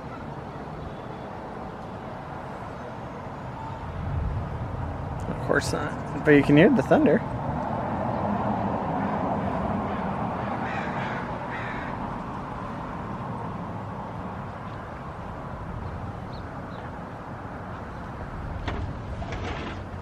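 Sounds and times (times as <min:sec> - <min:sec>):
low outdoor rumble: 0:02.4 - 0:20.0
bird harsh calls: 0:09.9 - 0:12.0.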